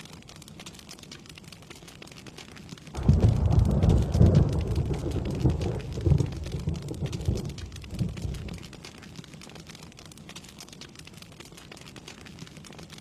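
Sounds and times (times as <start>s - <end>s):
rain pattering: 0.0s - 13.0s
thunder rumble: 3.0s - 8.8s.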